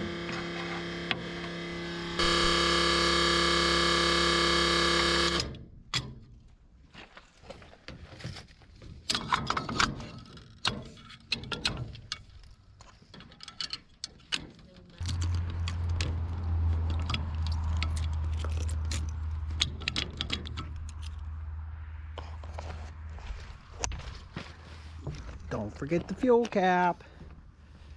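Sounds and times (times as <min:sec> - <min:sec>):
motor humming: 0:00.0 - 0:05.6
metallic clicks and clanks: 0:09.1 - 0:21.3.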